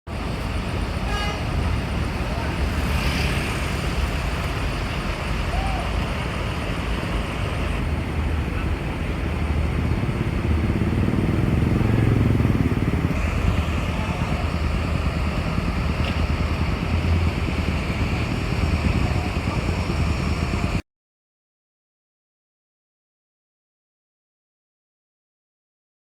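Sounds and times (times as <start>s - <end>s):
bus engine running: 0.1s - 20.8s.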